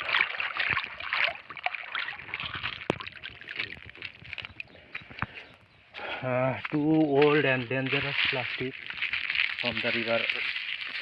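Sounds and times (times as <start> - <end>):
water splashes: 0.0 - 4.7, 7.6 - 11.0
plastic crinkling and rustling: 6.6 - 11.0.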